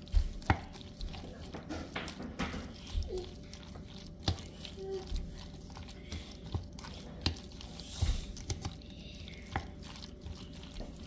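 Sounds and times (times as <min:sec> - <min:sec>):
wet squishing of stirred salad: 0:00.0 - 0:11.0.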